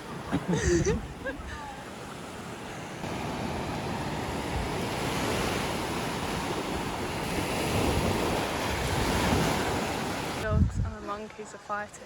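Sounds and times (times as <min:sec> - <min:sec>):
ocean waves surging on beach: 0:00.0 - 0:10.5
wind buffeting microphone: 0:03.3 - 0:11.4.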